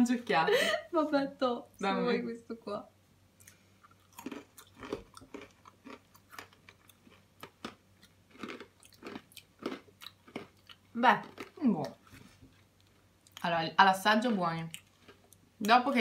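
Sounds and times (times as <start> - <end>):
chewing crunchy pretzels: 3.4 - 13.5, 14.2 - 15.5.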